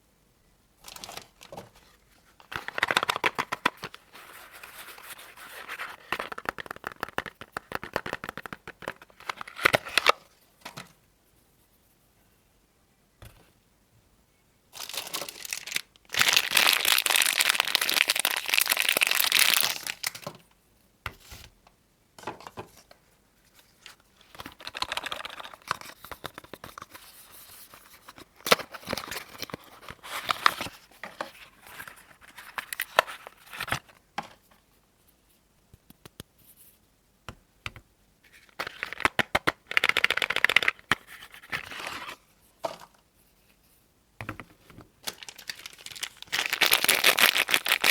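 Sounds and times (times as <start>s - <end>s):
packaging tearing and crinkling: 14.8s - 20.2s, 38.6s - 40.9s, 45.0s - 47.9s.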